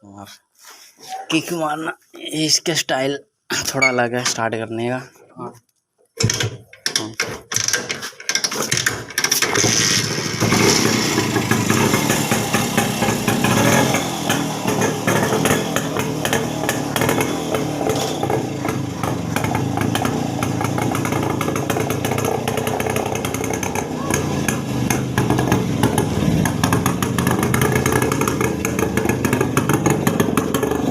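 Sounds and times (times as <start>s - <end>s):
motorcycle engine kick-started: 7.5s - 30.9s.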